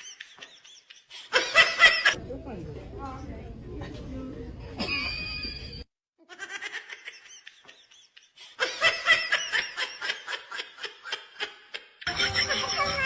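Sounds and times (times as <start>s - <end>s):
person laughing hard: 6.2s - 13.0s.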